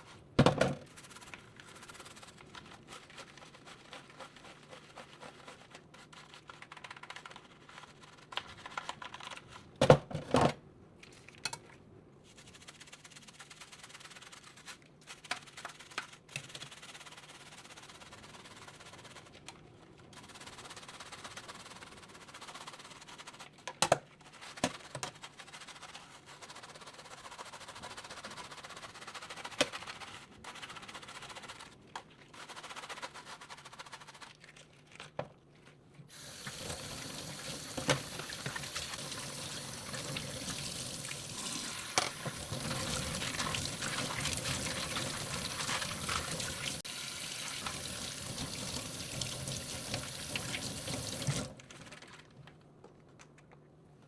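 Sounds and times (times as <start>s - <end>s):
tap running into a sink: 36.2s - 51.5s.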